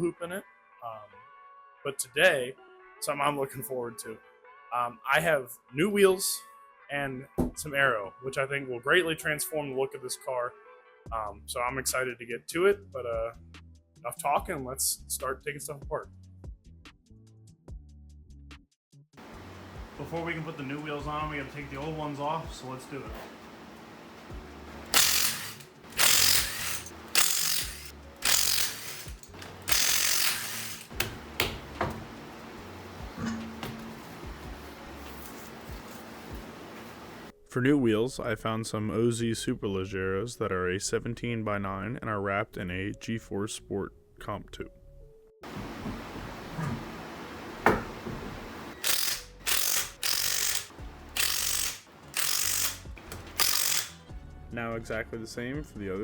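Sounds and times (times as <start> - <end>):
wrench ratcheting: 24.9 - 31.8, 48.8 - 54.0.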